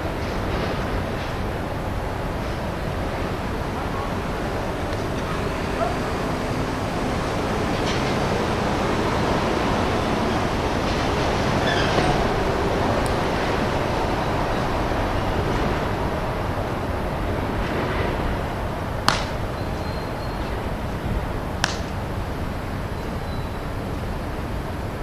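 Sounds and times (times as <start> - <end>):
steady rushing noise: 0.0 - 19.7
sharp smacks of a baseball: 19.1 - 19.4, 21.6 - 22.0.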